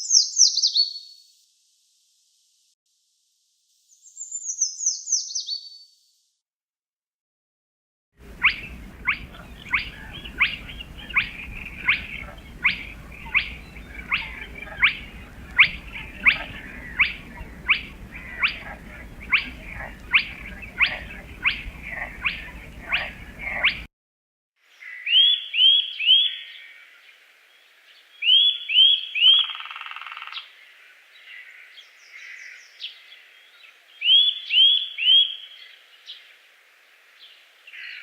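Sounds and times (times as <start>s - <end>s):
background hiss: 8.2s - 23.9s
bird falling call: 8.2s - 23.9s
high falling bird trill: 8.2s - 23.9s.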